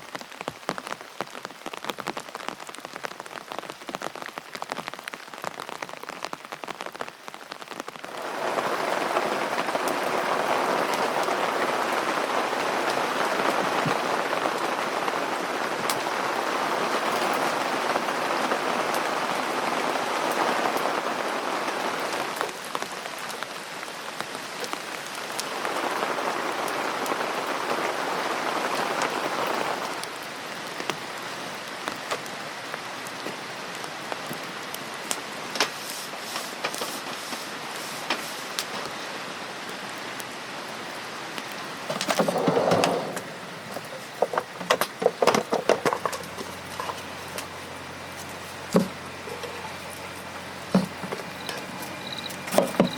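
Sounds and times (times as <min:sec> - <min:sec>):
steady rain falling: 0:00.0 - 0:52.9
sharp knocks and clatter: 0:41.9 - 0:47.5.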